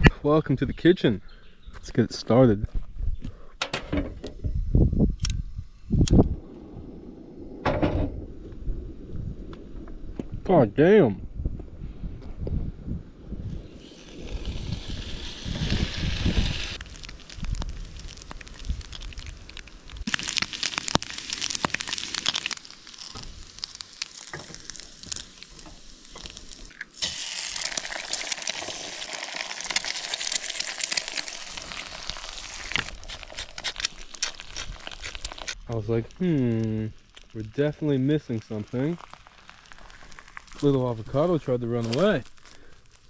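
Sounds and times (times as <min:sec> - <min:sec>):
food sizzling in a pan: 0:13.6 - 0:19.2, 0:20.0 - 0:35.6.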